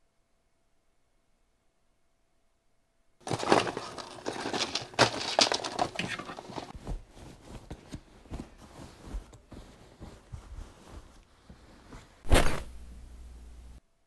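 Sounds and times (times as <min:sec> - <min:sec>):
bag contents rustling and clattering: 0:03.2 - 0:12.2.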